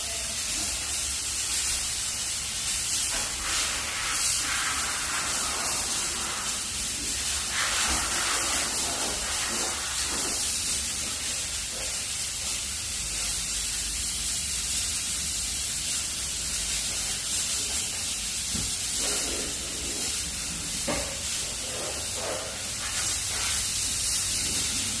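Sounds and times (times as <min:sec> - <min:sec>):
steam cleaner hissing: 0:00.0 - 0:25.0.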